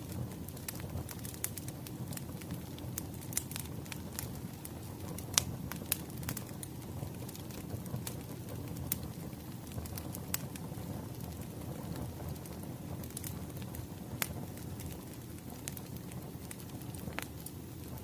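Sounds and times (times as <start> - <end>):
pops and snaps of fire: 0.0 - 18.0
wood fire crackling: 0.0 - 18.0.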